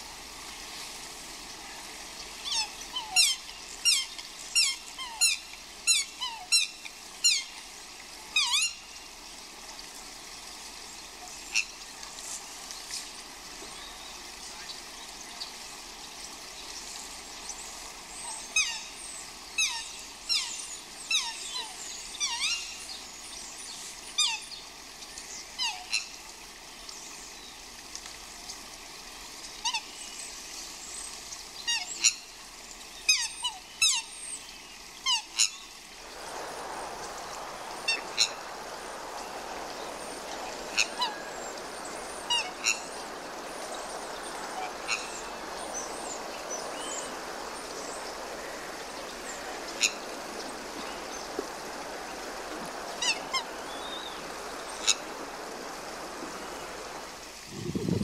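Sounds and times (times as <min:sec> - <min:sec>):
birds whistling high calls: 0:35.1 - 0:57.0
steady rushing noise: 0:36.0 - 0:58.0.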